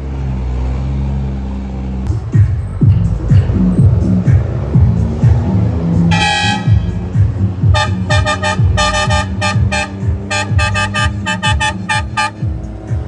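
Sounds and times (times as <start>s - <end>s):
music with thudding bass beat: 2.1s - 13.0s
short horn toots: 5.9s - 7.1s, 7.7s - 12.5s.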